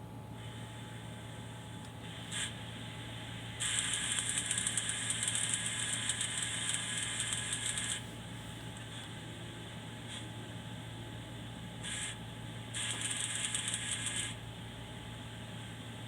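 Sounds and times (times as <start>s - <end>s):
machine low hum: 0.0s - 16.0s
fluttering high whirr: 3.6s - 8.1s, 11.8s - 14.4s.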